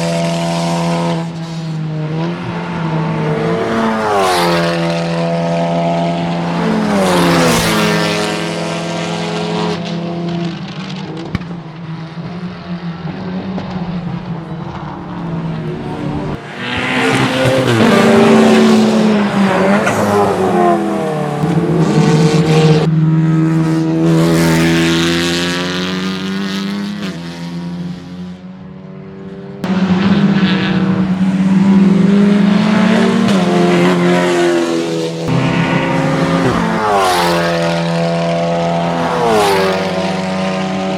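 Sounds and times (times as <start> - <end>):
race car engines revving: 0.0 - 40.9.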